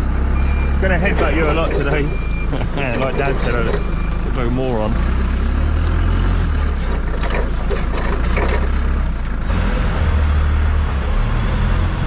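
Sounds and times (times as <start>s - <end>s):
farm vehicle engine droning: 0.0s - 12.0s
knocks and clatter: 6.5s - 12.0s.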